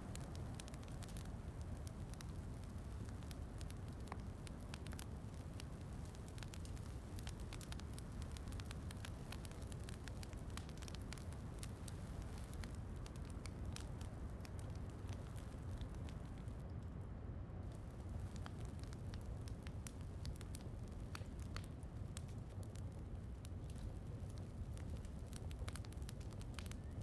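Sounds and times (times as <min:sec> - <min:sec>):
wood fire crackling: 0:00.0 - 0:17.0, 0:17.6 - 0:27.0.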